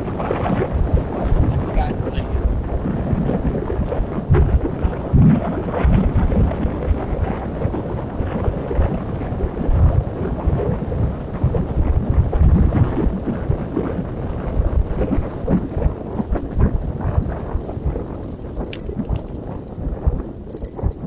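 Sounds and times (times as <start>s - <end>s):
wind buffeting microphone: 0.0s - 21.0s
light rattling ticks: 3.8s - 4.5s, 11.5s - 21.0s.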